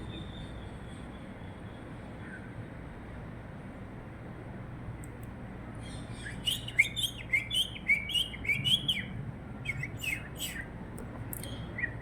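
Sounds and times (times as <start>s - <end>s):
parrot chirping: 5.9s - 10.7s.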